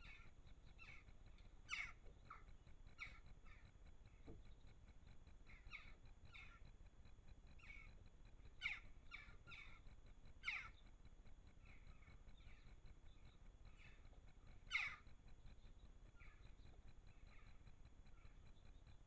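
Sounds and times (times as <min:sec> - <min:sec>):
harsh bird calls: 0:01.7 - 0:03.7, 0:08.6 - 0:09.8, 0:10.4 - 0:10.8, 0:13.7 - 0:15.1.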